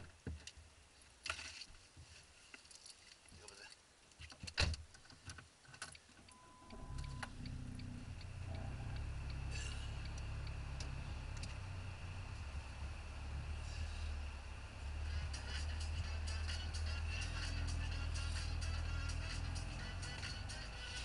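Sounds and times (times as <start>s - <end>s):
clicks and ticks: 5.8s - 11.6s
short beep: 6.3s - 7.2s
car engine running: 6.4s - 21.0s.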